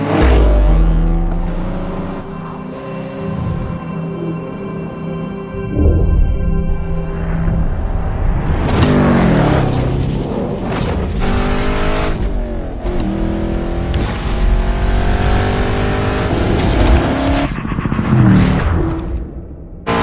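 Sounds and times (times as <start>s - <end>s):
car engine revving: 0.0s - 3.8s, 8.7s - 10.0s, 10.6s - 19.2s.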